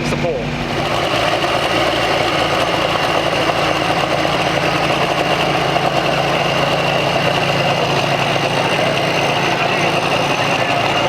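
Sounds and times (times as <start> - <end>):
large engine idling: 0.0 - 11.0.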